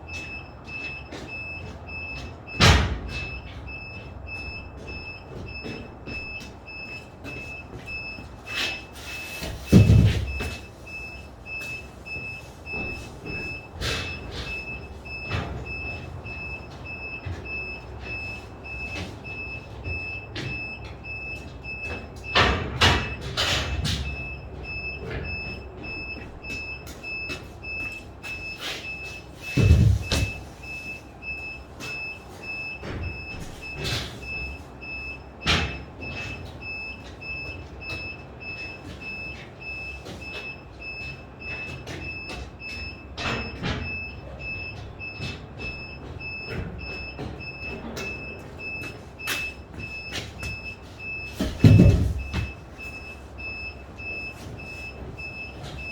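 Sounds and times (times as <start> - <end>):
loud thuds: 29.4 - 30.4, 51.4 - 52.6.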